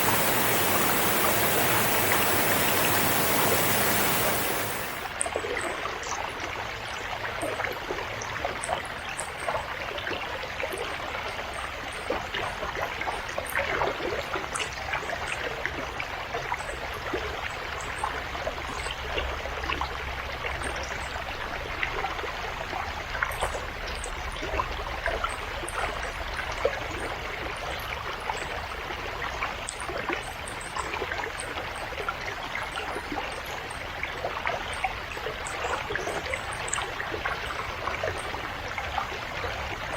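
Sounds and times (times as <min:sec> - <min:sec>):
river water flowing: 0:00.0 - 0:05.2.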